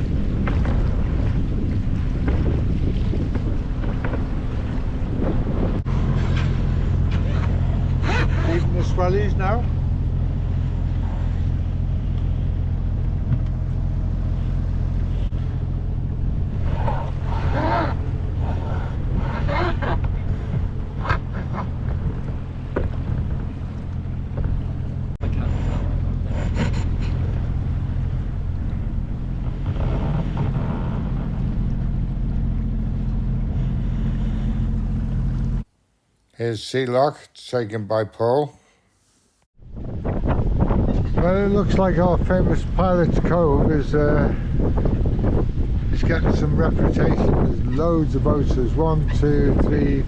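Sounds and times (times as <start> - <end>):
boat engine humming: 0.0 - 39.4
water noise: 0.0 - 40.8
wind: 0.0 - 50.0.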